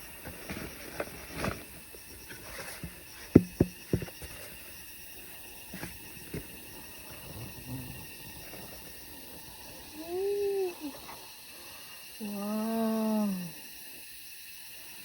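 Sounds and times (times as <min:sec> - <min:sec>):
faint steady hiss: 0:00.0 - 0:15.0
rocks and gear knocking: 0:02.2 - 0:04.5.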